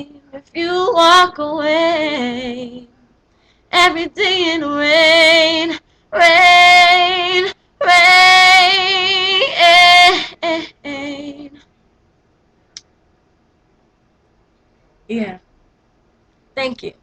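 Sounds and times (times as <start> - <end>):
woman singing unaccompanied: 0.0 - 3.0, 3.7 - 11.6
faint click: 12.7 - 13.0.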